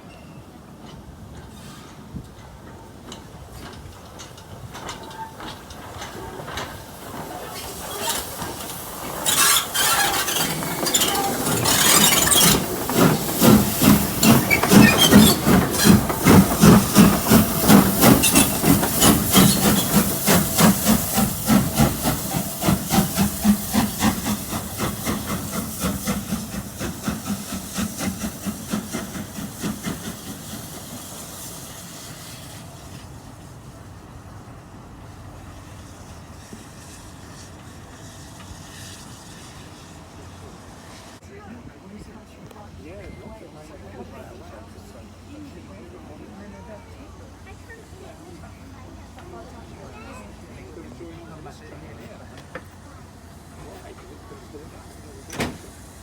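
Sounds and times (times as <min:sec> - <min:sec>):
steam locomotive exhaust chuffs: 0:00.7 - 0:41.2
loud steam hissing: 0:03.3 - 0:41.5, 0:43.8 - 0:56.0.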